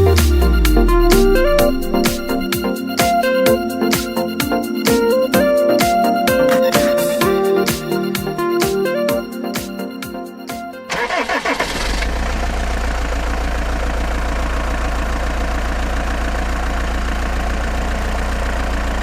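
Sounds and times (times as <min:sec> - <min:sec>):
music: 0:00.0 - 0:11.6
diesel truck engine starting and idling: 0:10.9 - 0:19.0.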